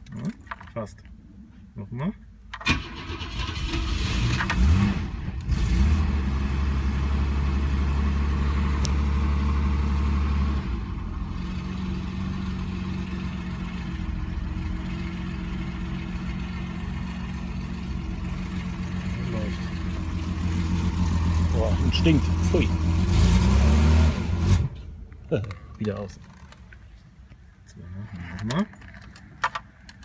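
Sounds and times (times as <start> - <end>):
car starter cranking: 2.5 - 5.6
car engine running: 4.5 - 27.0.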